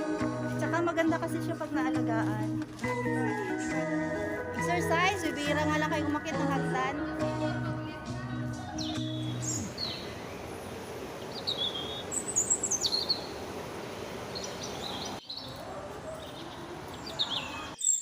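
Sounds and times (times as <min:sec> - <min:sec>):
birds chirping: 0:07.1 - 0:18.0
background hiss: 0:08.8 - 0:15.2.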